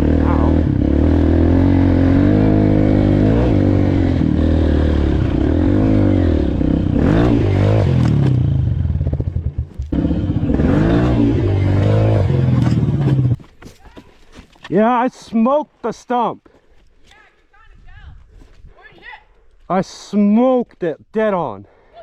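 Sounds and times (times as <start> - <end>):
dirt bike engine revving: 0.0 - 13.4.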